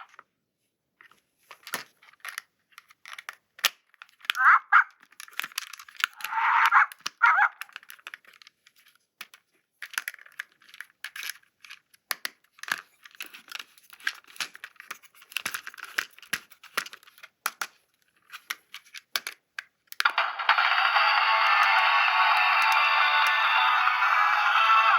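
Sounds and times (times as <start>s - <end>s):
plastic clicking and crackling: 1.0s - 20.2s
packaging tearing and crinkling: 5.1s - 6.3s.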